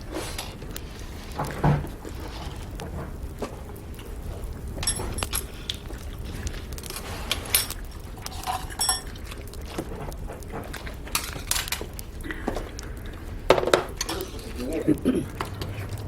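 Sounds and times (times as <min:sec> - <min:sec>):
metal utensils clinking on dishes: 0:04.8 - 0:05.6, 0:06.9 - 0:09.8, 0:10.6 - 0:12.0, 0:13.5 - 0:16.0.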